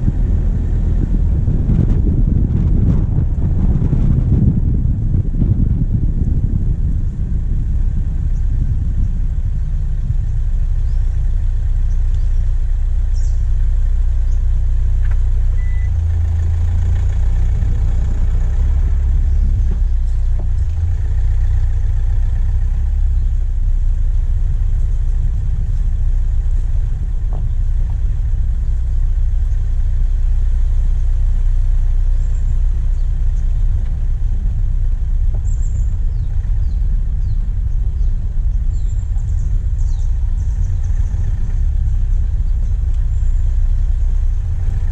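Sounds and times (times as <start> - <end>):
diesel engine rumbling: 0.0 - 44.9
faint high chirps: 15.5 - 16.0.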